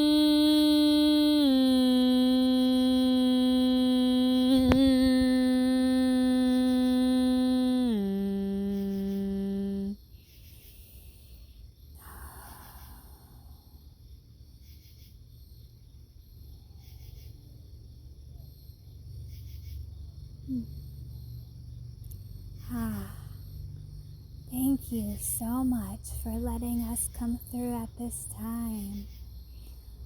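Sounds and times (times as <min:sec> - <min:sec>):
hummed vocal tone: 0:00.0 - 0:10.0, 0:20.5 - 0:20.7, 0:22.6 - 0:23.4
high chirps like crickets: 0:00.0 - 0:30.0
low steady background hum: 0:00.0 - 0:30.0.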